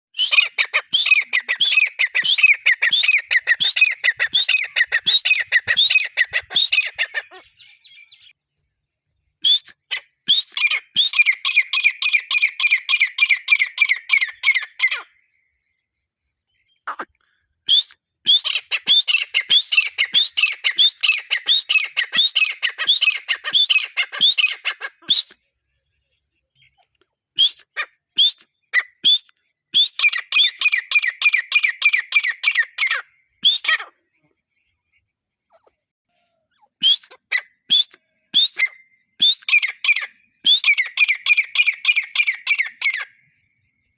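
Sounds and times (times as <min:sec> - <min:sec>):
francolin calling: 0:00.2 - 0:07.6, 0:16.9 - 0:17.1.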